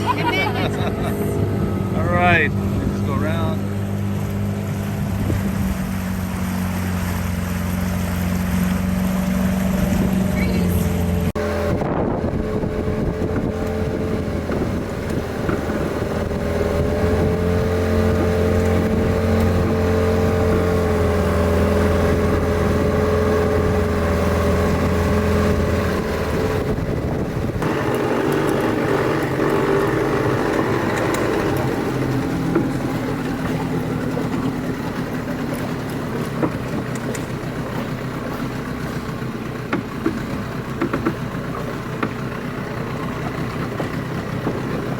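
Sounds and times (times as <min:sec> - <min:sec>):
motorboat engine running: 0:00.0 - 0:44.9.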